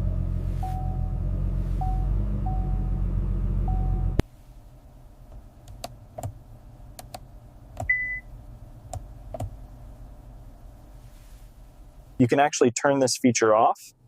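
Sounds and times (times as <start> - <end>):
sharp clicks: 7.0 - 7.2.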